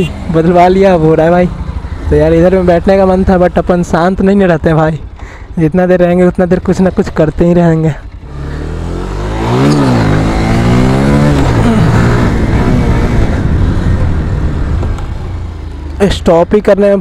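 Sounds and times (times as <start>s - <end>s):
motorcycle engine revving: 0.0s - 5.2s, 5.9s - 17.0s
wind on microphone: 11.5s - 15.0s.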